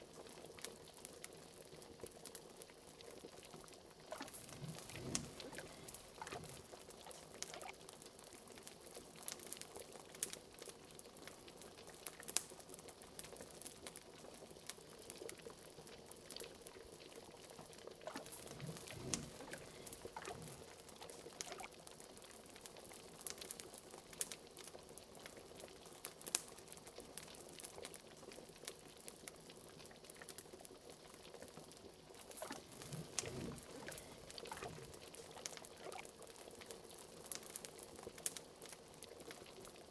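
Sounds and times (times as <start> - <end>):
liquid boiling in a pot: 0.0 - 39.9
deep bubble plops: 4.1 - 7.7, 18.1 - 21.7, 32.4 - 36.0.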